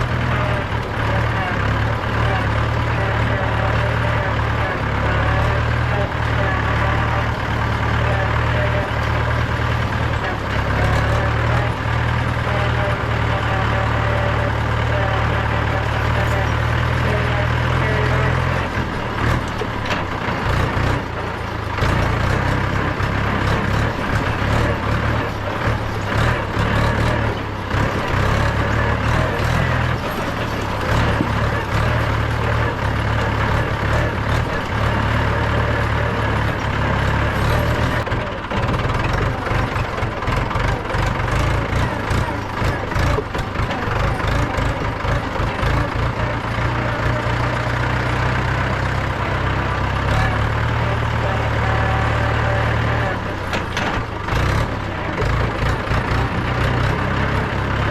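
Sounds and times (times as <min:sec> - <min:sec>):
tractor diesel engine running: 0:00.0 - 0:57.9
machine rattling and knocking: 0:14.5 - 0:49.2, 0:52.7 - 0:57.8.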